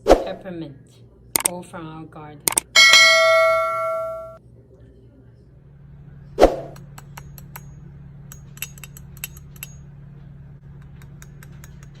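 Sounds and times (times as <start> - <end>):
steady low hum: 2.5 - 12.0.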